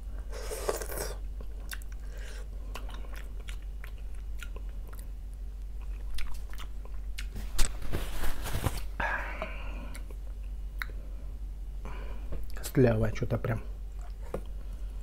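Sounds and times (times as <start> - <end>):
person chewing and smacking: 0.2 - 7.4, 9.9 - 11.0, 13.9 - 14.7.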